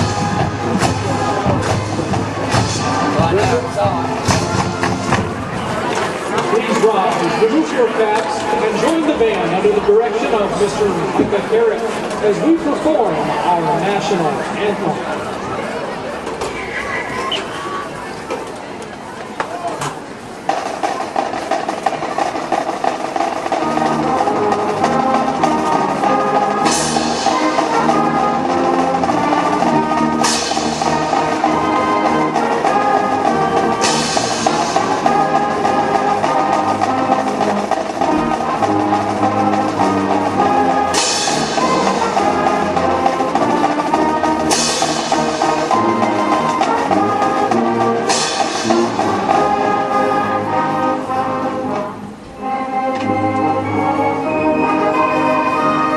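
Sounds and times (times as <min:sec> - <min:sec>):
marching band brass and drums: 0:00.0 - 0:55.9.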